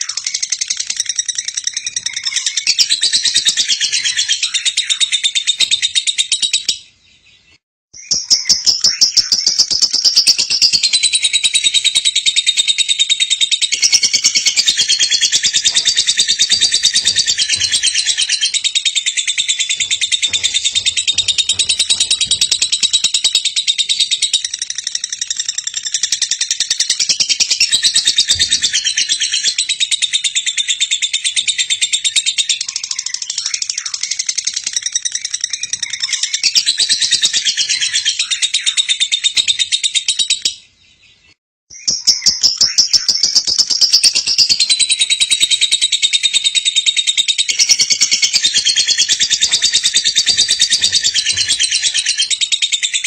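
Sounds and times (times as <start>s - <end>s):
lovebird chattering: 10.1s - 30.2s, 44.0s - 53.0s.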